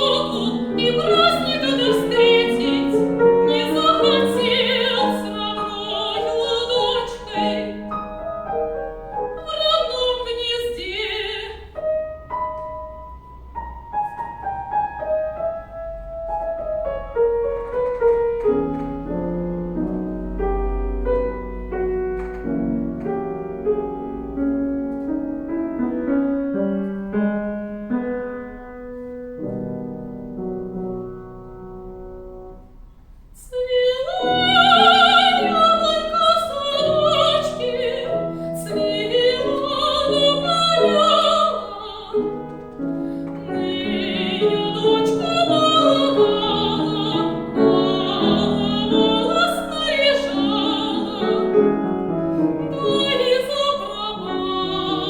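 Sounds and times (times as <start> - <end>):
operatic soprano singing: 0.0 - 7.9, 9.3 - 11.8, 33.4 - 42.5, 43.2 - 55.0
piano accompaniment: 0.0 - 55.0.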